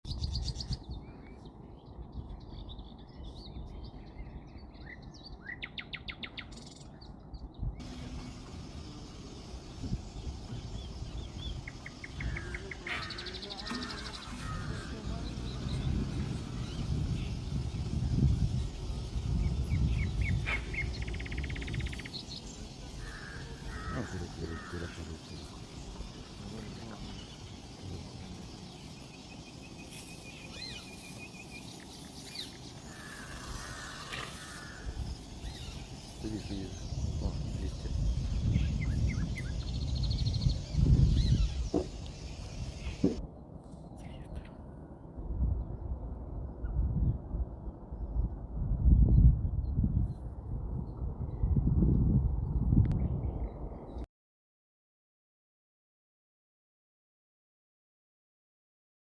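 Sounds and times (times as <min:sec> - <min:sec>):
birds chirping: 0:00.0 - 0:44.9
high insect hiss: 0:07.8 - 0:43.2
rapid rattling bird call: 0:11.6 - 0:15.8
harsh crow caws: 0:23.0 - 0:25.0, 0:32.9 - 0:35.0.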